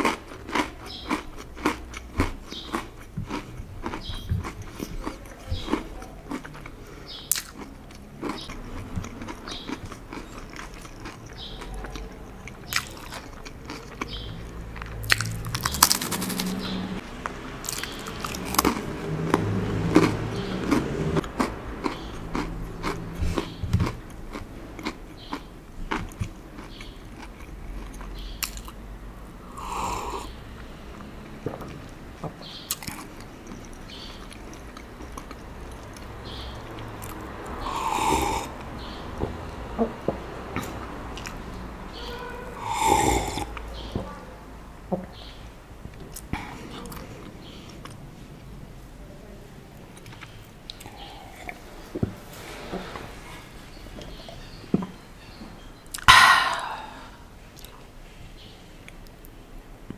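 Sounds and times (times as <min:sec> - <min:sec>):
crunching and chewing cracker: 0:00.0 - 0:17.0, 0:17.6 - 0:28.8, 0:30.9 - 0:39.3.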